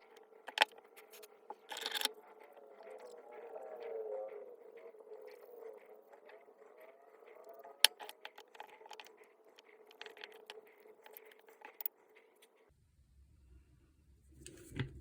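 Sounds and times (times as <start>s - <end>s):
small hard parts clicking: 0.0s - 3.1s, 7.1s - 12.7s.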